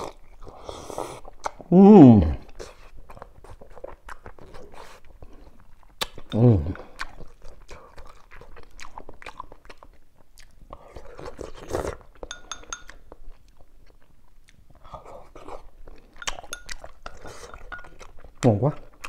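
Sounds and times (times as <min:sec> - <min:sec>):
man chewing with mouth clicks: 0:00.0 - 0:01.7, 0:02.4 - 0:19.0
chopsticks clinking on porcelain bowl: 0:12.2 - 0:13.0, 0:16.2 - 0:18.2.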